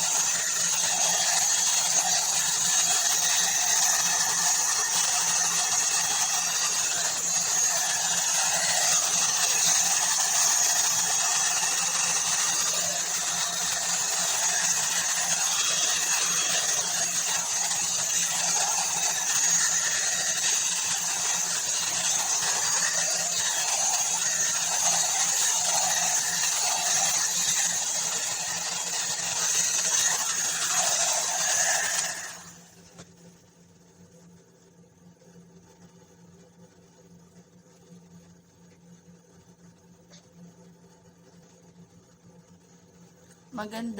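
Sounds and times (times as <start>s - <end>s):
hot air brush blowing: 0.0s - 32.7s.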